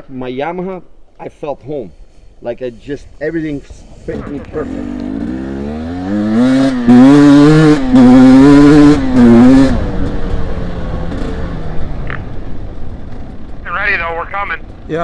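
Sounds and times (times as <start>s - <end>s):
dirt bike engine revving: 2.9s - 13.3s.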